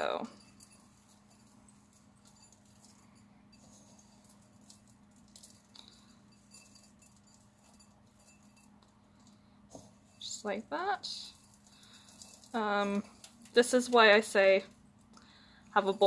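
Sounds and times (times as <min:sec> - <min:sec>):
faint steady hum: 0:00.0 - 0:16.0
seeds pattering and ticking: 0:01.1 - 0:09.4.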